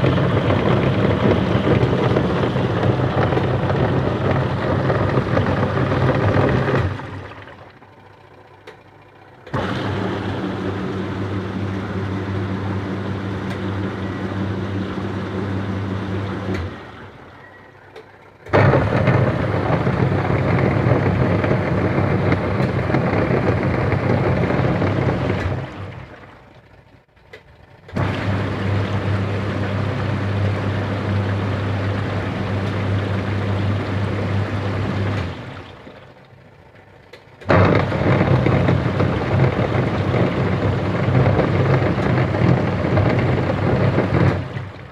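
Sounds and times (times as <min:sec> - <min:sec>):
washing machine agitating: 0:00.0 - 0:44.9
gearbox grinding: 0:37.5 - 0:44.5.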